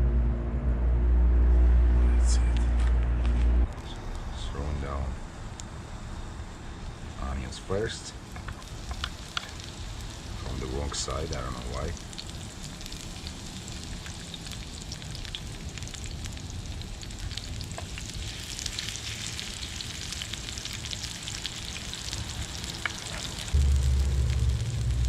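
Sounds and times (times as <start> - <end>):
low background rumble: 0.0 - 25.0
onions sizzling in a pan: 6.1 - 25.0.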